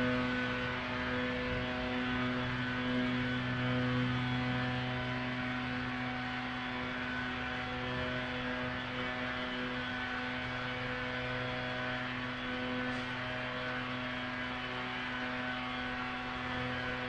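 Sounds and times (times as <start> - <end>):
motor humming steadily: 0.0 - 17.0.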